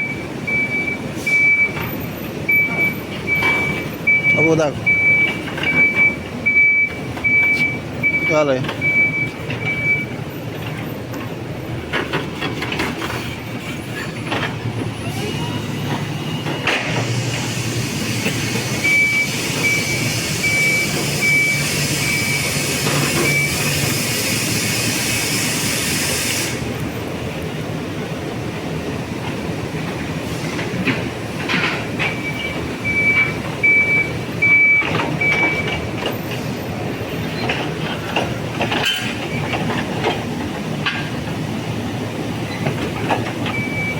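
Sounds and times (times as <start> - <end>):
high warning beeps: 0.0 - 10.6, 18.6 - 23.8, 32.0 - 35.8, 43.5 - 43.9
truck mechanical hum: 0.0 - 43.9
knocks and clanks: 2.6 - 15.0, 29.2 - 36.5, 37.2 - 41.4, 42.5 - 43.9.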